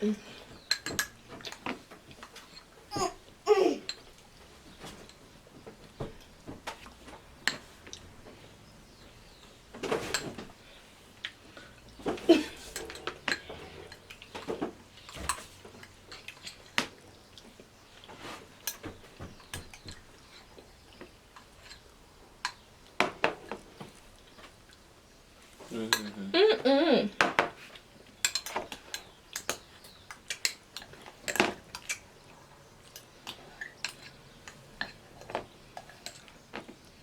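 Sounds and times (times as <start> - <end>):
cutlery clinking on dishes: 0.5 - 3.1, 5.9 - 8.0, 9.8 - 10.4, 12.0 - 16.8, 25.8 - 26.2, 27.2 - 32.0.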